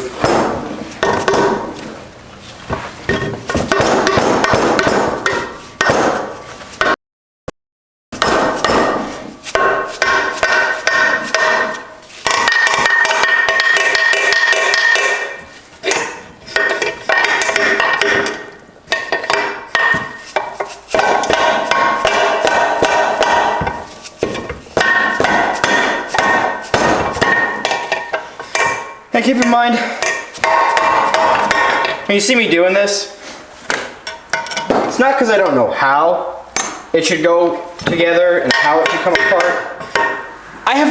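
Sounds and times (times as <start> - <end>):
hammer striking metal: 0.0 - 1.8, 3.1 - 7.0, 8.2 - 32.0, 36.6 - 36.9, 37.8 - 40.4.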